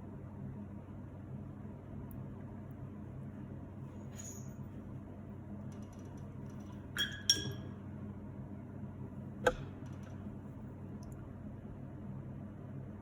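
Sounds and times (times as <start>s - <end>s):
steady low hum: 0.0s - 13.0s
paintbrush clinking glass jar: 6.7s - 7.7s.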